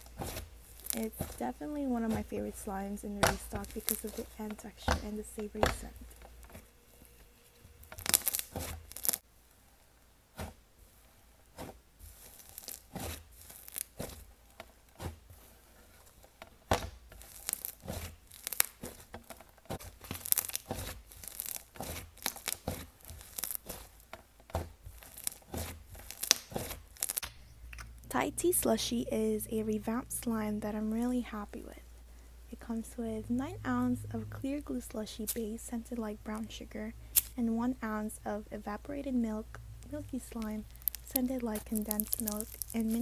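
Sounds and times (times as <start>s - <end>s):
slime popping and crackling: 0.0s - 6.6s, 7.8s - 9.2s, 12.1s - 14.4s, 16.6s - 27.3s, 34.5s - 43.0s.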